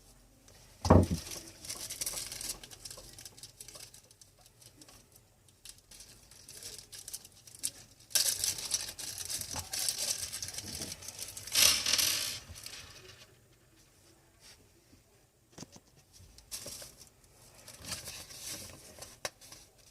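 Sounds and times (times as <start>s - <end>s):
rustling crinkling handling noise: 0.5s - 14.6s, 15.6s - 19.9s.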